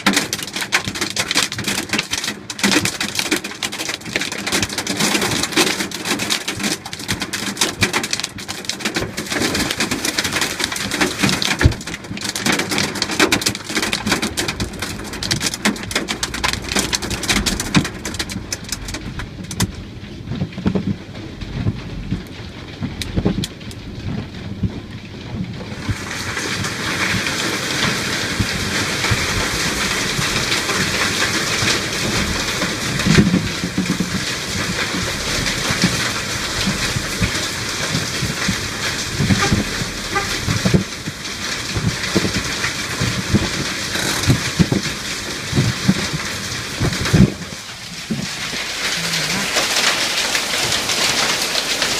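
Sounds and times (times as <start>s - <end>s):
hailstones pelting down: 0.0s - 51.9s
heavy rain hissing: 21.1s - 51.9s.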